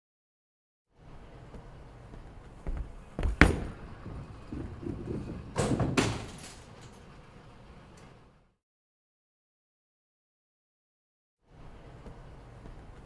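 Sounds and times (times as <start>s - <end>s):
knocks and thuds: 2.7s - 4.9s.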